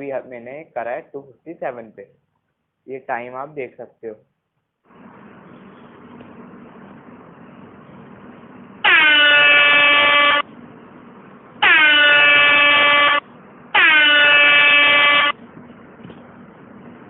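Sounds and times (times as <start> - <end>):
air horn blasts: 8.8 - 10.5, 11.6 - 15.4.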